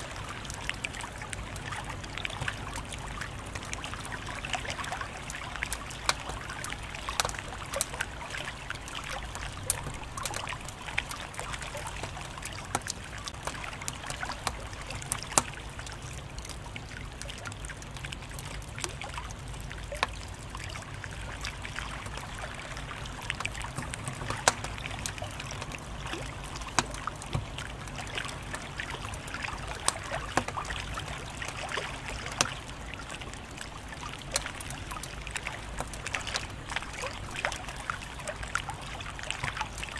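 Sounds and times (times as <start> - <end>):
wood fire crackling and popping: 5.2 - 16.6, 23.2 - 32.5.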